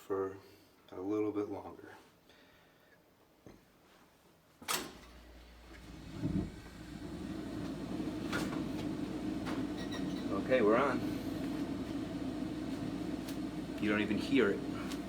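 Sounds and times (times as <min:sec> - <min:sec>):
boiler humming: 0:05.4 - 0:15.0
circulator pump running quietly: 0:05.5 - 0:15.0.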